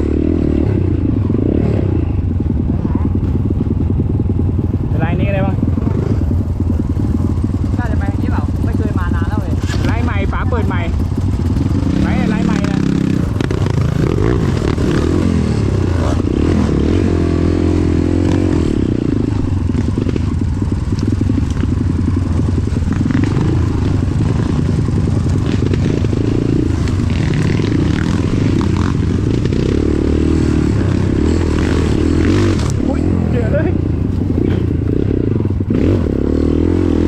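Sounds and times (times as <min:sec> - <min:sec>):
motorcycle engine running: 0:00.0 - 0:37.0
rattling and scraping: 0:06.0 - 0:15.4.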